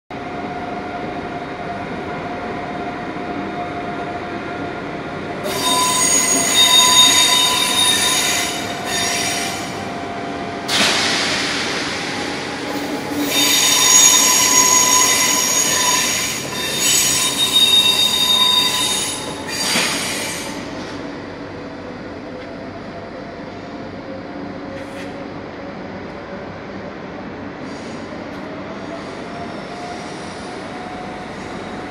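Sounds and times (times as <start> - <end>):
train wheels squealing: 5.4 - 10.0, 12.6 - 21.0
electric train rolling: 5.4 - 23.0.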